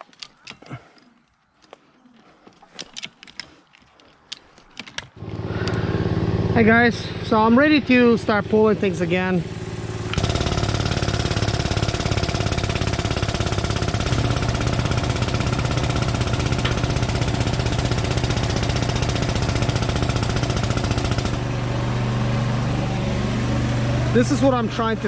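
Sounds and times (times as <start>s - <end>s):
engine chugging: 5.2s - 25.0s.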